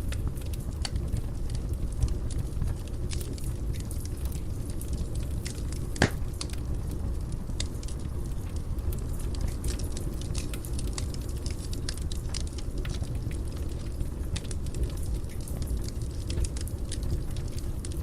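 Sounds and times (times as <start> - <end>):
fire crackling: 0.0 - 18.0
fire rumbling in fireplace: 0.0 - 18.0
loud fire pop: 6.0 - 6.3.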